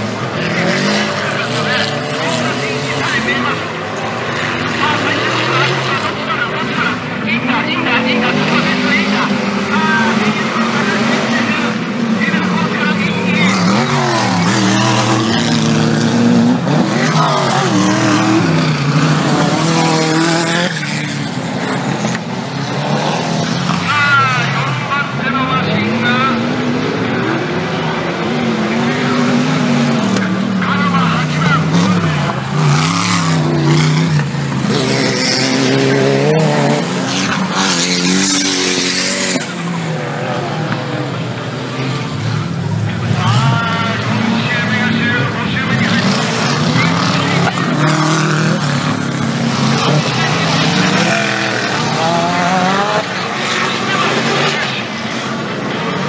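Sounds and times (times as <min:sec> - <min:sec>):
off-road engines revving: 0:00.0 - 0:56.0
engine revving hard: 0:28.3 - 0:54.9.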